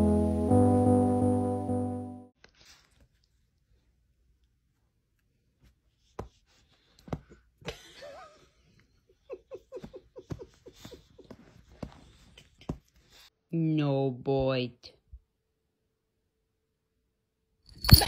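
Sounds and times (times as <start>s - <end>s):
person laughing softly: 7.6s - 13.0s.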